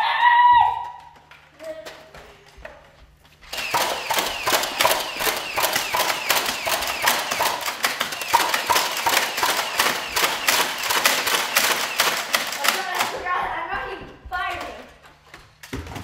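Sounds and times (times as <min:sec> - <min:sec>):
rapid sharp clacks: 0:03.4 - 0:13.2.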